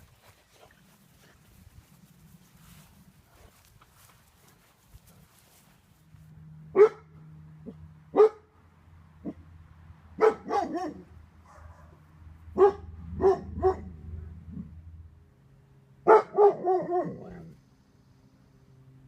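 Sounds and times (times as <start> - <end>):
dog barking: 6.7 - 7.1, 8.1 - 8.5, 10.2 - 12.0, 12.6 - 14.0, 16.0 - 17.5.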